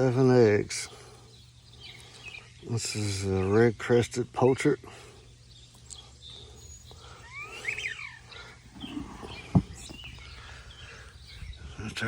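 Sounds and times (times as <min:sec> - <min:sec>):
bird whistling call: 0:07.0 - 0:10.4.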